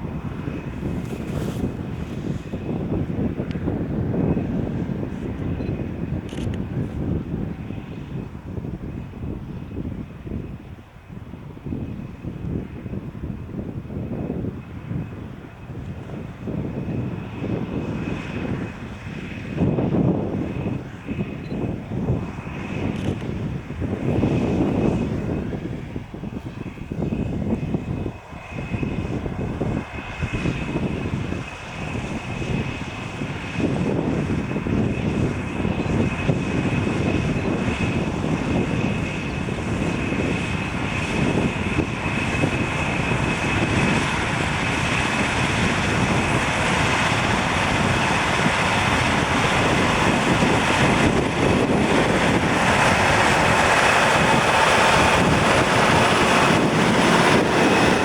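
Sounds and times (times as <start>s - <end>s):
tractor diesel engine under load: 36.7s - 58.0s.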